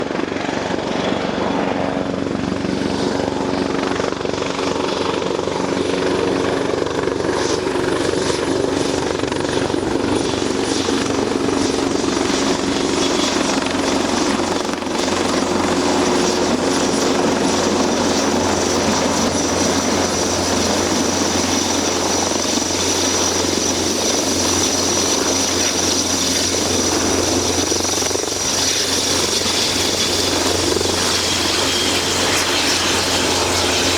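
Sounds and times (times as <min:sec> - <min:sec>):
helicopter rotor and engines: 0:00.0 - 0:33.9
high turbine whine: 0:06.5 - 0:33.9.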